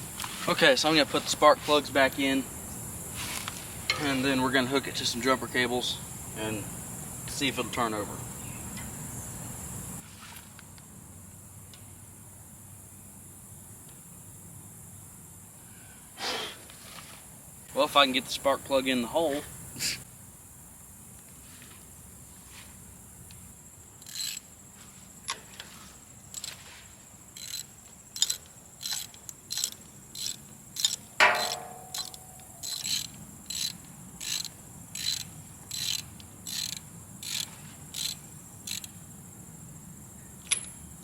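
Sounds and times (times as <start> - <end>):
ratchet wrench clicking: 24.0 - 24.4, 27.4 - 39.0
sharp metallic clink: 30.8 - 33.0.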